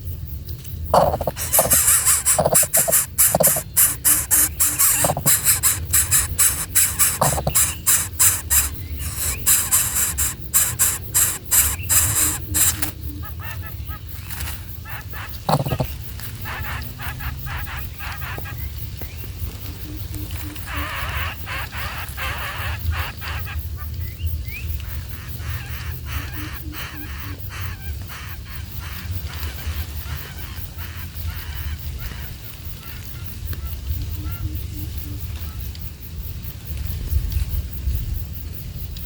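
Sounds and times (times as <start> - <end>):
young birds calling: 1.0 - 14.0, 15.0 - 18.6, 25.2 - 32.2.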